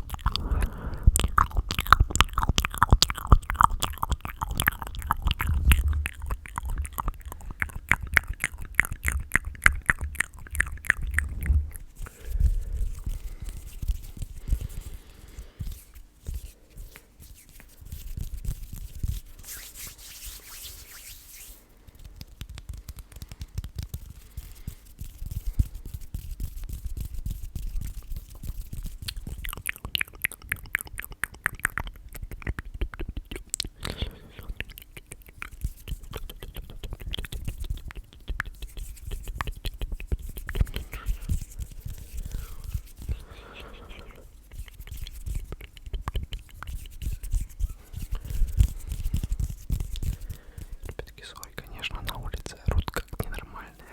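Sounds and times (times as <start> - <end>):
wet mouth clicks: 0.0 - 16.2, 21.9 - 53.9
soft rubbing: 4.6 - 29.0, 35.5 - 52.0.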